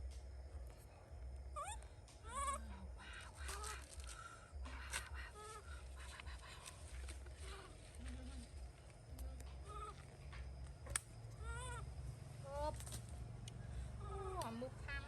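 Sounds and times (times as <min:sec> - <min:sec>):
low pulsing rumble: 0:00.0 - 0:15.0
monkey calling: 0:01.6 - 0:03.8, 0:11.3 - 0:12.7.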